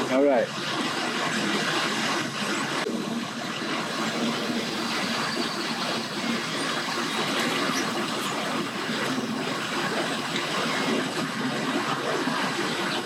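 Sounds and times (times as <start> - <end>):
rushing water: 0.0 - 13.0
faint low engine hum: 3.9 - 11.0.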